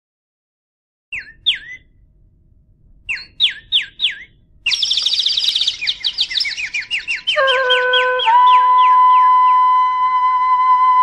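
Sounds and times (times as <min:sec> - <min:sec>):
bird chirping and twittering: 0:01.1 - 0:01.9, 0:03.1 - 0:09.6.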